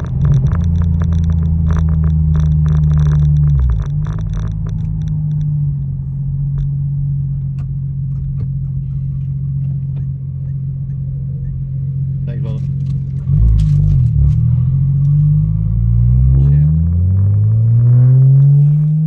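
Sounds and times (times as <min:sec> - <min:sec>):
small sharp ticks: 0:00.0 - 0:05.5
car engine droning: 0:00.0 - 0:19.0.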